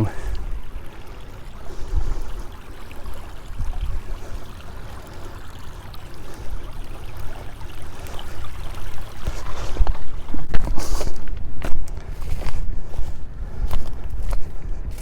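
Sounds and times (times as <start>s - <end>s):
stream flowing: 0.0s - 15.0s
footsteps on slippery ground: 9.2s - 15.0s.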